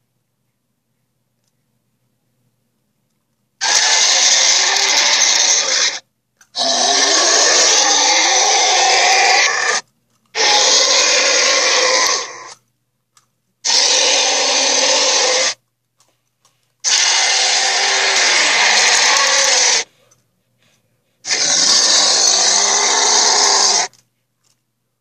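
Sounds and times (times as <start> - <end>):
loud rasping dinosaur roars: 3.6 - 6.0, 6.6 - 9.8, 10.4 - 12.6, 13.7 - 15.6, 16.9 - 19.9, 21.3 - 23.9.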